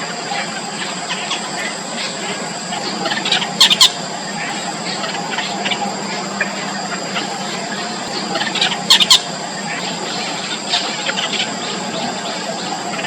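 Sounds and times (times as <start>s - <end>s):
loud bird calls: 0.0s - 13.0s
nestlings squeaky begging calls: 2.1s - 12.8s.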